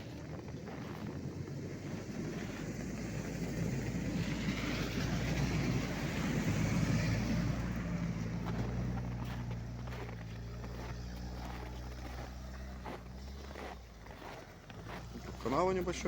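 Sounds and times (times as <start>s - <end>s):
vehicle engine hum under load: 0.0s - 16.0s.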